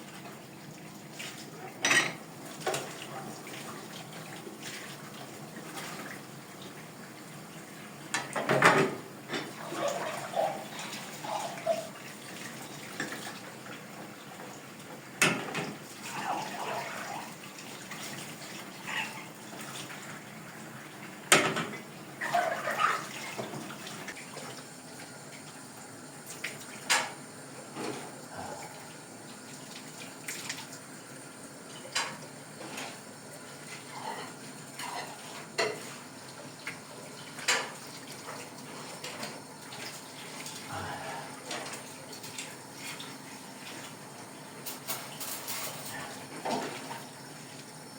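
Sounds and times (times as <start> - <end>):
pots and dishes clinking: 1.8 - 2.9, 8.1 - 11.9, 33.8 - 36.0, 37.4 - 37.8, 44.6 - 47.0.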